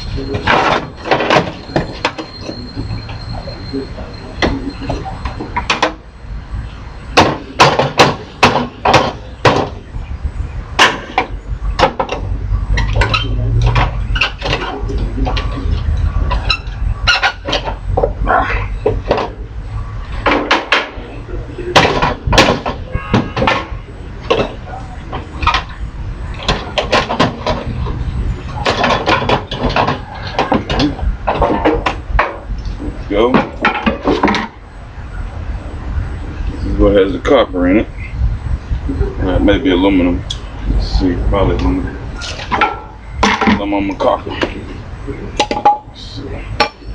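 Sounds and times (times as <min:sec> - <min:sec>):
metal parts knocking and rattling: 0:00.3 - 0:03.2, 0:10.8 - 0:18.2, 0:21.7 - 0:34.6, 0:42.2 - 0:44.6, 0:45.4 - 0:45.9
hammer striking metal parts: 0:07.2 - 0:09.8.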